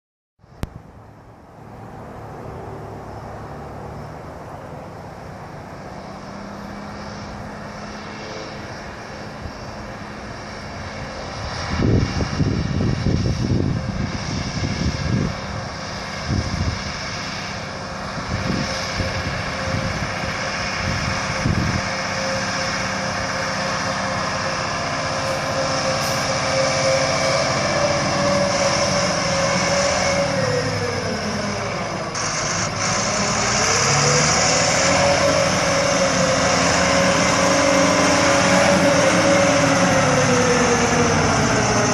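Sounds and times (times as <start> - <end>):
truck diesel engine running: 0.4 - 41.9.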